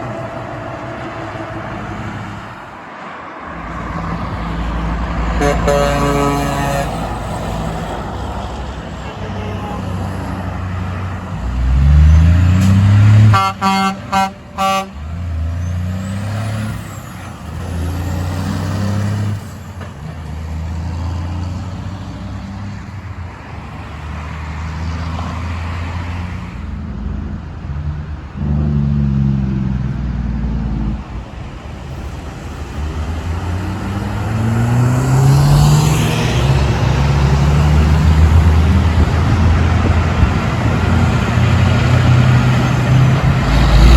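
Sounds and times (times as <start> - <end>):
diesel truck engines accelerating: 0.0 - 43.9
truck air horn blasts: 5.2 - 7.4, 12.6 - 15.4.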